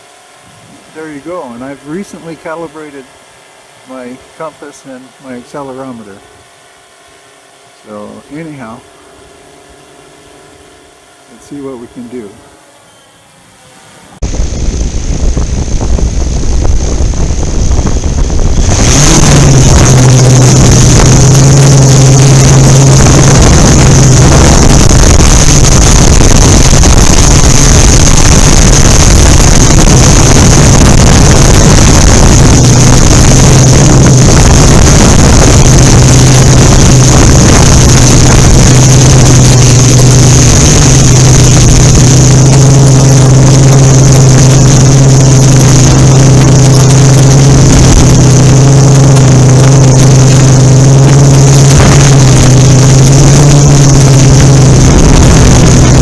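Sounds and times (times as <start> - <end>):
wind noise on microphone: 0.0 - 2.6, 14.2 - 56.0
drone motors buzzing: 7.8 - 56.0.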